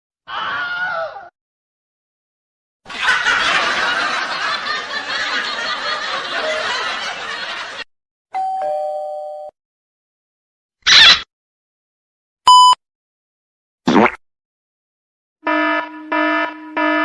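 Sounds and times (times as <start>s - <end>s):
two-tone doorbell chime: 8.3s - 9.6s.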